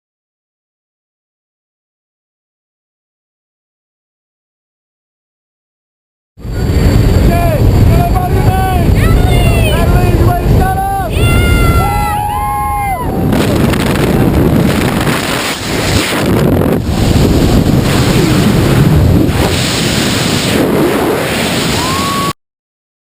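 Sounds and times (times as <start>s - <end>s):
wind buffeting microphone: 6.4s - 22.3s.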